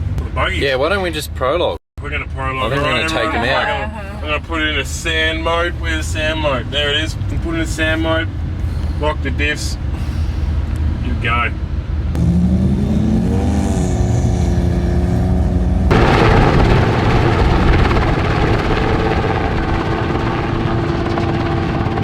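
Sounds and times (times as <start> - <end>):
vehicle engine revving: 12.1 - 22.0
rushing noise: 12.2 - 22.0.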